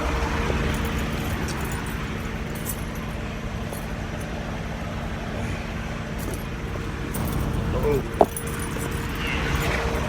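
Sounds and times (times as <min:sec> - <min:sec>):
faint constant hum: 0:00.0 - 0:10.0
truck engines idling: 0:00.0 - 0:10.0.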